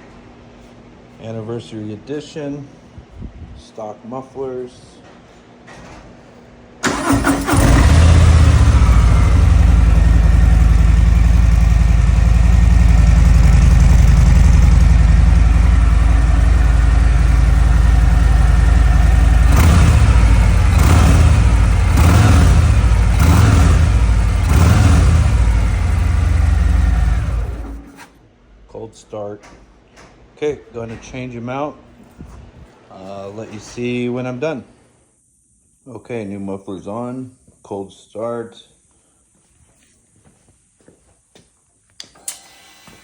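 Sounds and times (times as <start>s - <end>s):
engine cranking: 6.8s - 11.9s, 12.7s - 28.2s
motorcycle engine idling and revving: 6.9s - 28.0s.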